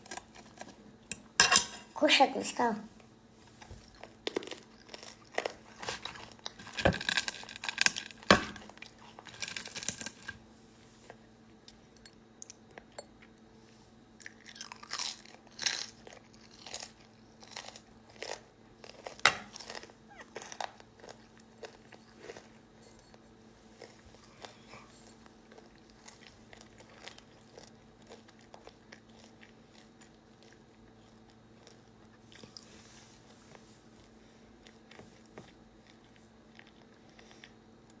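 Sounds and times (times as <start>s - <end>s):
chewing and crunching food: 0.0s - 1.8s, 3.4s - 38.0s.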